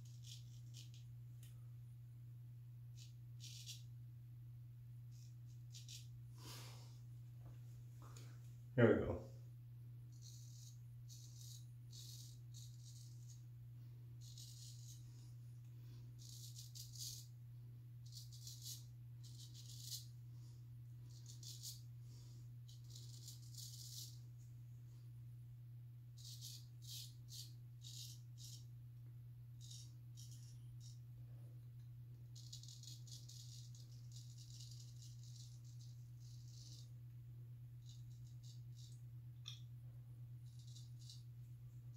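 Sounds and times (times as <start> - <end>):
straight razor scraping stubble: 0.0 - 1.1, 3.0 - 3.9, 10.1 - 13.4, 14.2 - 15.0, 16.2 - 17.3, 22.7 - 24.2, 29.6 - 31.0, 32.3 - 36.9, 37.8 - 39.6, 40.4 - 41.3
steady low hum: 0.0 - 41.9.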